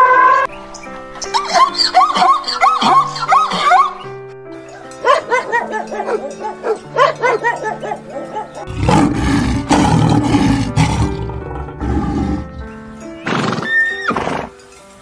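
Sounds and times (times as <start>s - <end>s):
background music: 0.0s - 15.0s
dog yelping: 1.4s - 4.0s, 4.8s - 8.7s
lion roaring: 8.6s - 12.6s.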